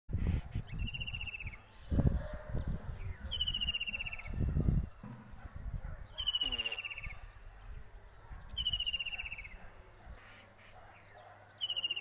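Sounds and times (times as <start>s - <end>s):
bird singing rapid trill: 0.7s - 1.6s, 3.2s - 4.6s, 6.1s - 7.2s, 8.5s - 9.6s, 11.5s - 12.0s.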